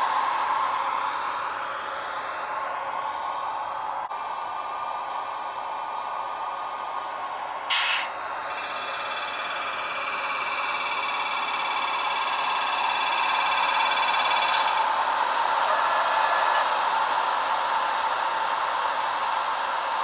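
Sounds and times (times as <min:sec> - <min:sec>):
high multi-tone whine: 0:00.4 - 0:16.7
short sharp hiss: 0:07.7 - 0:08.1.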